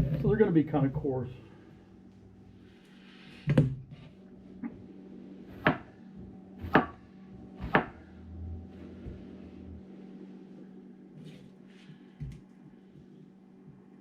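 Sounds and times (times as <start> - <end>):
faint steady hum: 0.0 - 14.0
knife slicing onion on cutting board: 5.5 - 5.9, 6.6 - 7.0, 7.6 - 8.0.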